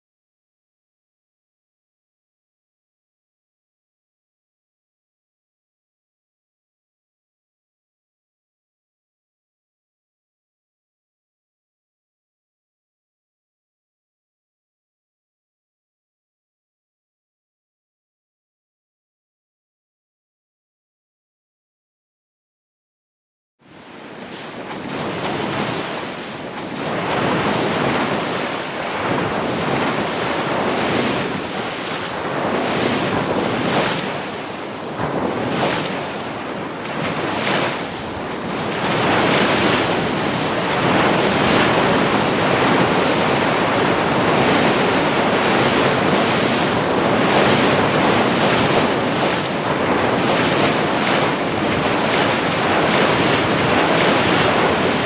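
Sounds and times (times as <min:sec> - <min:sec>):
ocean waves breaking: 0:23.7 - 0:55.0.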